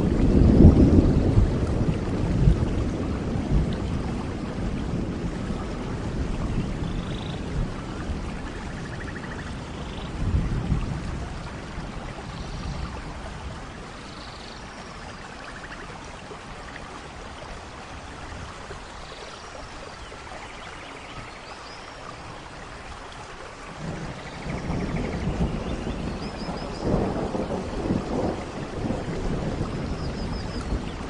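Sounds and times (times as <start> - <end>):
thunder rumble: 0.0 - 14.1, 23.7 - 31.0
steady rainfall: 0.0 - 31.0.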